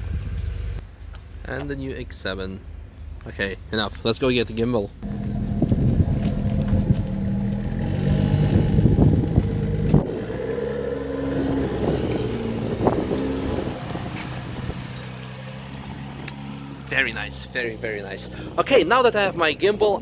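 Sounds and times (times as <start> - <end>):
car engine running at low revs: 5.0 - 17.2.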